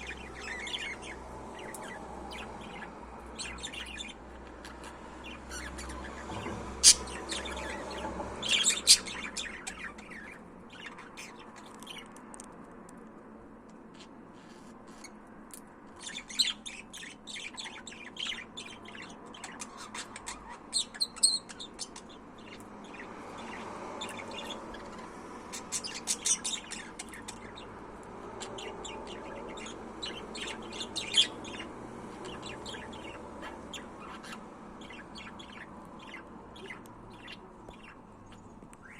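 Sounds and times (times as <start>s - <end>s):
budgerigar chirping: 0.0s - 11.4s, 28.4s - 38.0s.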